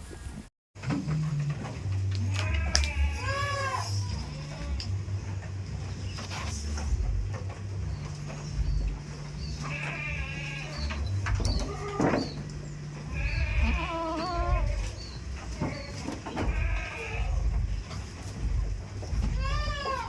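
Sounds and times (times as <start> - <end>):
goats bleating: 2.1 - 5.1, 8.5 - 20.0.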